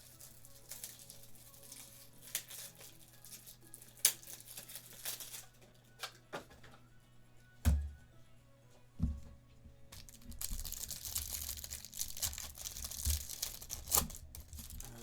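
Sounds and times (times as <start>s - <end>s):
cards and wrappers rustling: 0.0s - 6.1s, 10.0s - 15.0s
dull knock: 7.7s - 8.0s.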